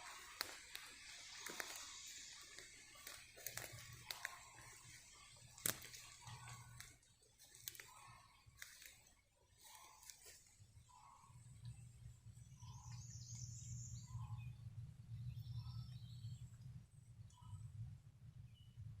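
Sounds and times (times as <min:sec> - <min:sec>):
footsteps on leaves and twigs: 0:00.0 - 0:10.7
twig snapping: 0:05.5 - 0:08.0, 0:08.6 - 0:09.0.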